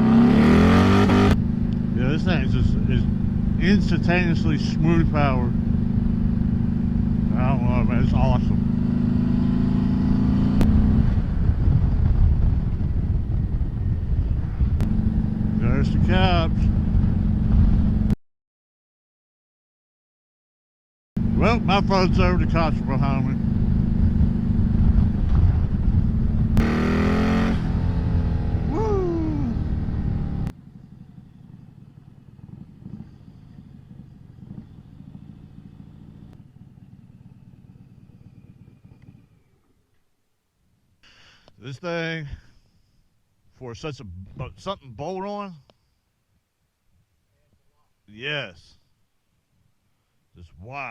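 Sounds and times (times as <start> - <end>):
motorcycle engine running: 0.0 - 18.2, 21.2 - 40.0
wind rush: 10.4 - 18.1, 23.6 - 30.3
rider whooping: 28.6 - 29.8.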